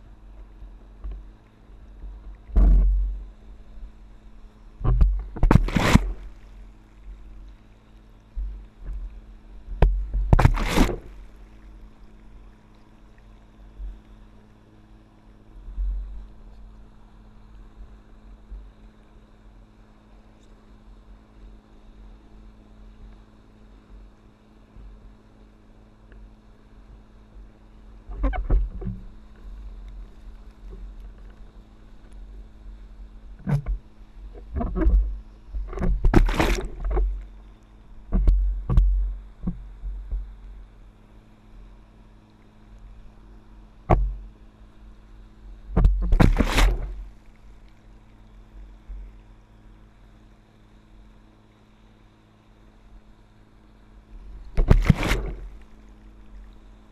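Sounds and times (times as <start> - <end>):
motorboat engine droning: 0.0 - 56.9
water rushing and splashing: 4.8 - 7.7, 9.8 - 12.6, 33.4 - 37.5, 45.7 - 47.7, 54.2 - 56.5.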